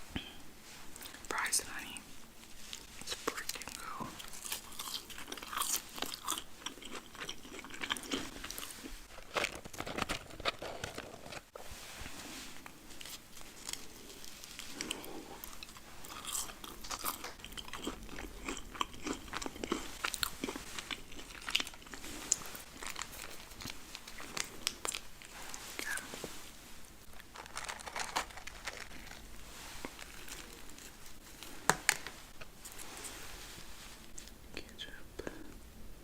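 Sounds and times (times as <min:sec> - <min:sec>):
crunchy bites and chewing: 0:04.2 - 0:11.2, 0:13.6 - 0:26.1.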